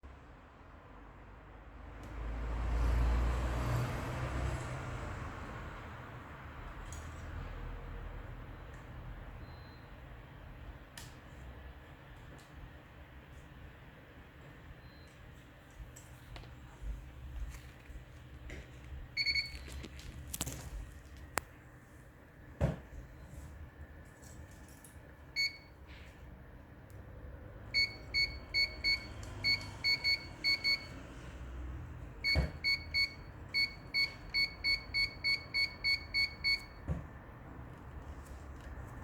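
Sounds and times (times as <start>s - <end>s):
touch-screen beeps: 19.2s - 19.6s, 27.8s - 30.9s, 32.2s - 36.8s.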